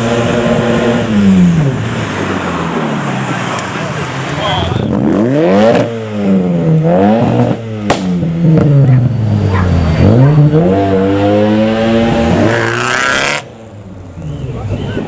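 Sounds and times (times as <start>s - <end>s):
car engine revving: 0.0s - 15.0s
sharp exhaust crack: 7.2s - 10.1s.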